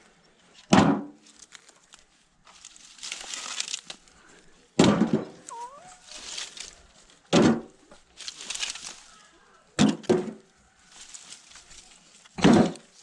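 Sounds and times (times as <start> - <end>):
scraping and rustling of bark: 1.2 - 13.0
firewood knocking: 7.3 - 8.0, 12.4 - 13.0.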